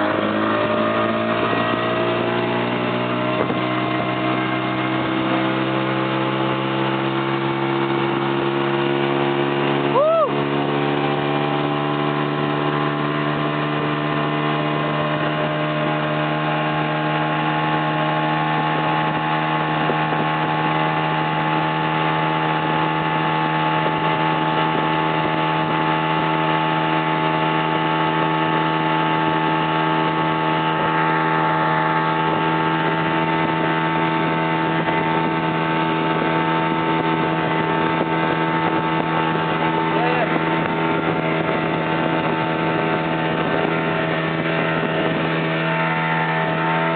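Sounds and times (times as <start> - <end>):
motorboat engine droning: 0.0 - 46.9.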